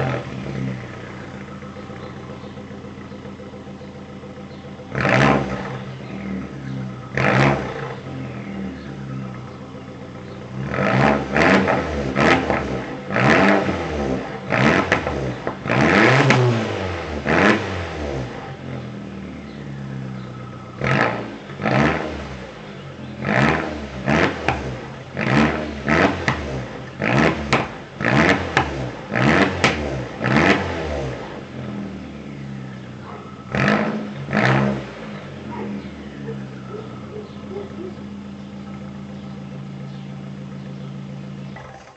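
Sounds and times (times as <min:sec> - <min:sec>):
car engine idling: 0:00.0 - 0:41.9
car engine revving: 0:00.0 - 0:41.9.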